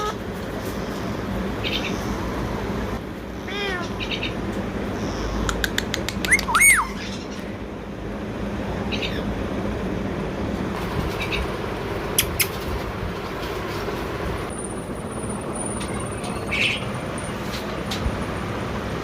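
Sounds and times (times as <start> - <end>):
parakeet calls and chirps: 1.6 - 2.1, 3.6 - 4.4, 6.2 - 7.6, 8.9 - 9.3, 16.3 - 16.9
quick clicks: 5.4 - 6.6
whistled bird call: 6.2 - 7.3.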